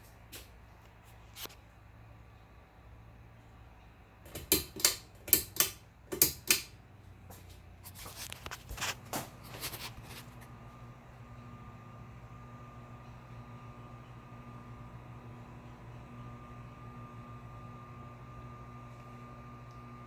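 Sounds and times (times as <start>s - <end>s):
fan motor humming: 0.0s - 20.0s
pull-chain switch clicking: 4.3s - 6.7s.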